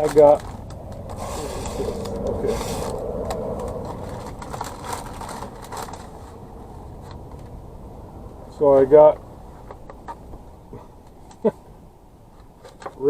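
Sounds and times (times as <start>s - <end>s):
food packaging rustling: 0.0s - 7.5s
steady low rumble: 0.0s - 12.3s.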